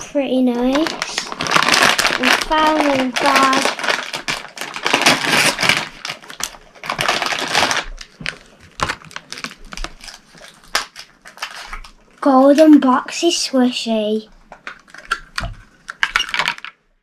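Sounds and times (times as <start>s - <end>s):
wrapping crackles and clicks: 0.0s - 13.3s, 14.3s - 16.8s
packaging tearing and rustling: 0.6s - 12.0s, 14.6s - 16.7s.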